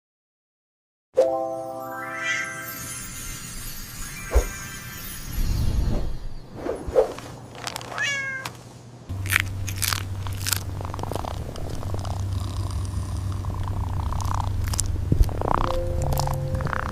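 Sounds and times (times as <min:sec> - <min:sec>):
cat meowing: 0:08.0 - 0:08.5
steady low hum: 0:08.6 - 0:16.9.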